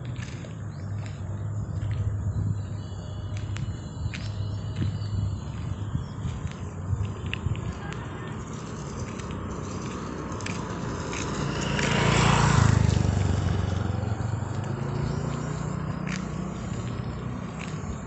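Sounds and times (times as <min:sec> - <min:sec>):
vehicle passing by: 0:04.8 - 0:18.0.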